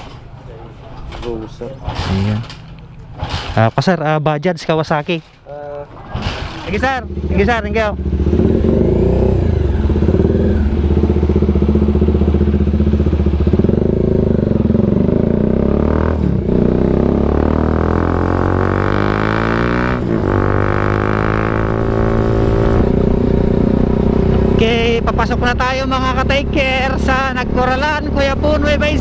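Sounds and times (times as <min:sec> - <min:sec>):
motorcycle engine accelerating: 0:06.0 - 0:29.0.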